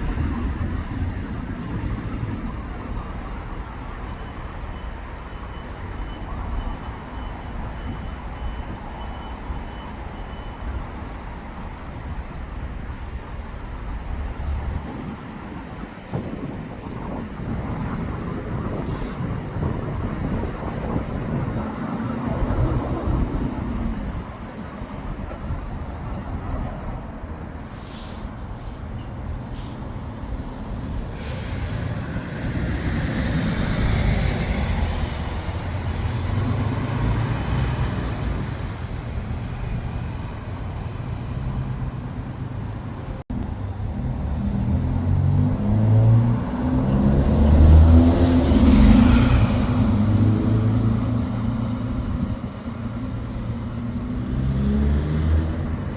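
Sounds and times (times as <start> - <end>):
diesel coach engines running: 27.6 - 42.4
air brakes hissing: 27.7 - 33.9.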